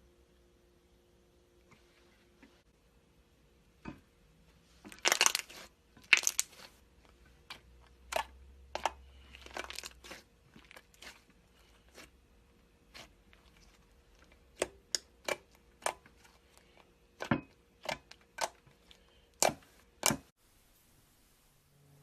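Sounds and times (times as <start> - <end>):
slime crackling and popping: 4.9 - 6.8, 7.5 - 11.3.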